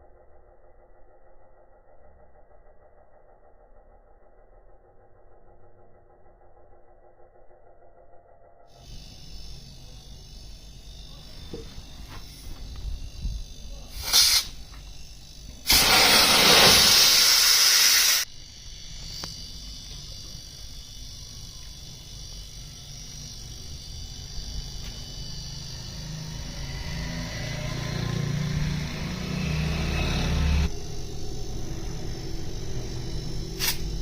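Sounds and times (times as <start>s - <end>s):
low hum: 0.0s - 34.0s
spray hissing: 8.8s - 34.0s.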